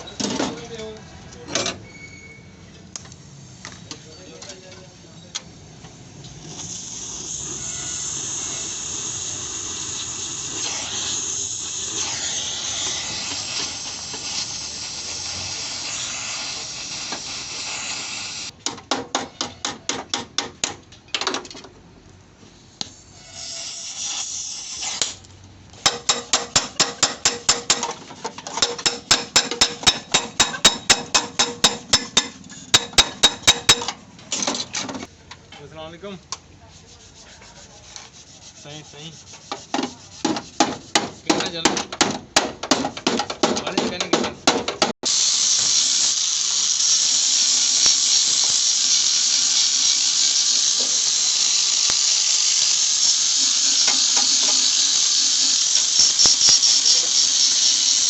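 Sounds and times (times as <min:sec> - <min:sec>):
high hissing of power tool: 0:06.0 - 0:18.5, 0:22.8 - 0:25.2, 0:25.8 - 0:33.9, 0:45.0 - 0:58.0
hammer blows on sheet metal: 0:28.6 - 0:33.9.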